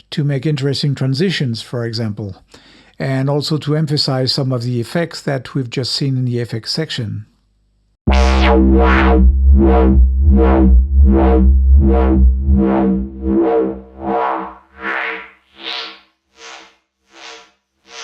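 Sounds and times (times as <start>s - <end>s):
wobbling dubstep synth bass: 8.1s - 15.2s.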